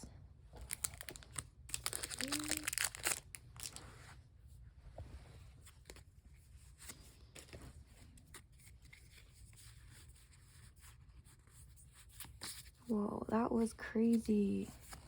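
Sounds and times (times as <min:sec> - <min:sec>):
trading cards clicking and rustling: 0:00.6 - 0:03.8.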